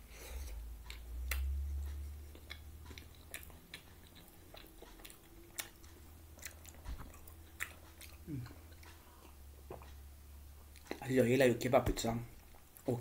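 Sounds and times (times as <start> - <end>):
person chewing food: 0.4 - 11.0, 12.3 - 12.9
wet mouth clicks and smacks: 0.8 - 8.2.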